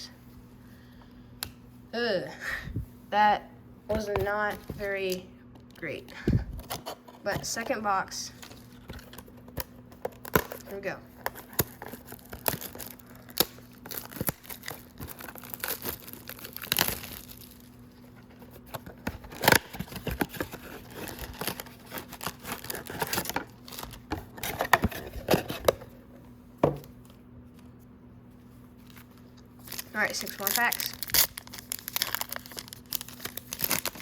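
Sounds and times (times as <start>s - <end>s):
packaging crinkling and tearing: 8.4s - 25.9s, 28.7s - 34.0s.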